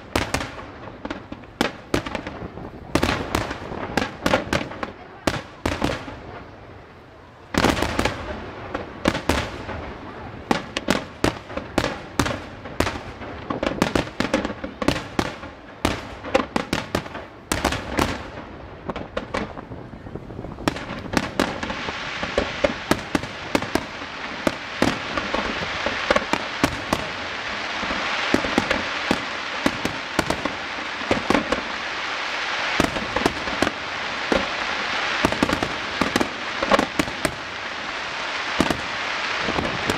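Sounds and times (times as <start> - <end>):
firework crackling: 0.0 - 39.9
firework shells bursting: 20.7 - 39.9.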